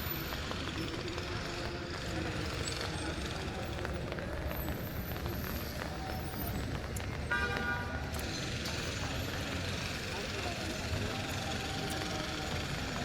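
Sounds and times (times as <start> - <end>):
street traffic: 0.0 - 13.0
car horn toot: 7.3 - 7.8.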